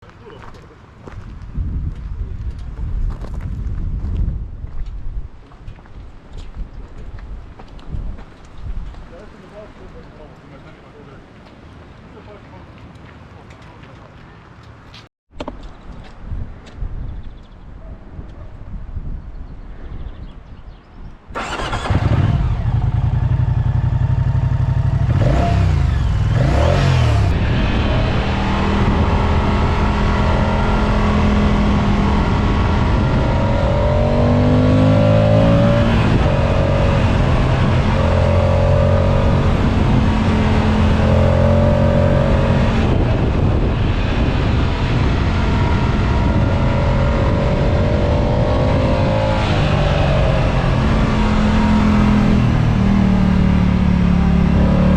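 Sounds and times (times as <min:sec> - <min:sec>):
motorcycle engine revving: 0:21.4 - 0:54.9.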